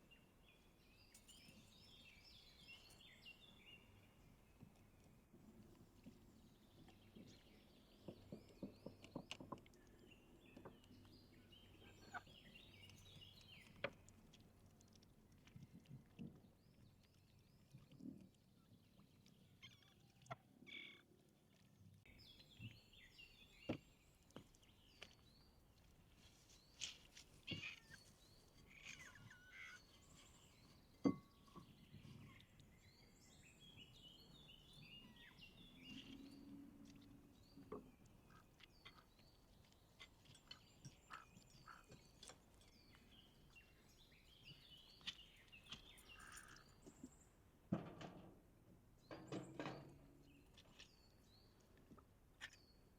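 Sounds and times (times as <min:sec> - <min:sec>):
birds chirping: 0:06.6 - 0:14.2, 0:26.4 - 0:47.4.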